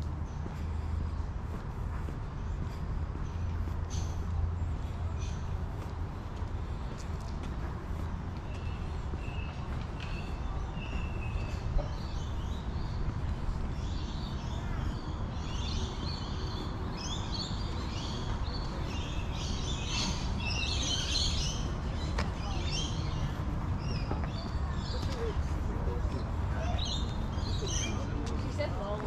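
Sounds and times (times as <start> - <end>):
birds chirping and calling: 8.5 - 28.1.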